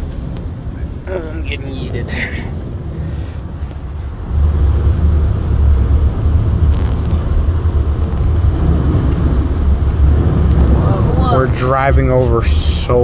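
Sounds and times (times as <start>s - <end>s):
car interior rumble: 0.0s - 13.0s
water hissing from tyres: 0.0s - 13.0s.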